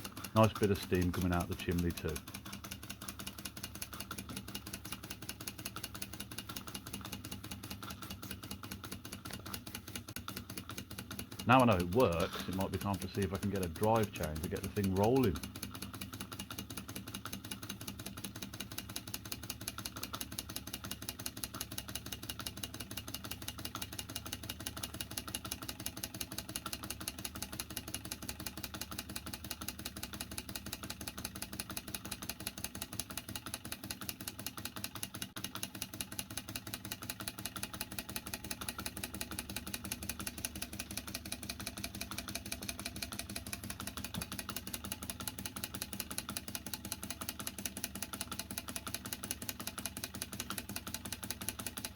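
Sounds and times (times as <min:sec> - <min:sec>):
toy steam engine clattering: 0:00.0 - 0:35.9.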